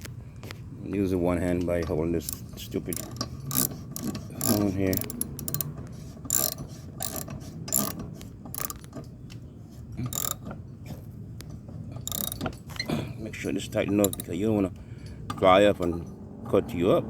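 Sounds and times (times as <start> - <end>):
ratchet wrench clicking: 2.2 - 8.9, 10.1 - 10.4, 12.1 - 12.5, 14.0 - 14.4.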